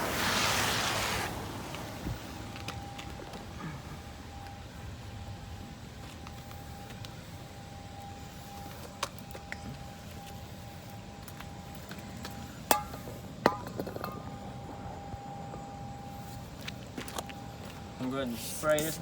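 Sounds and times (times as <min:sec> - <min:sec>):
outdoor rumble: 0:00.0 - 0:18.2
thin high whine: 0:00.0 - 0:19.0.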